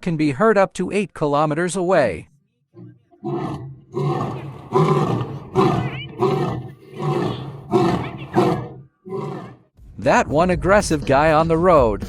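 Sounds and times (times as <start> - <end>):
lion roaring: 2.8 - 9.7.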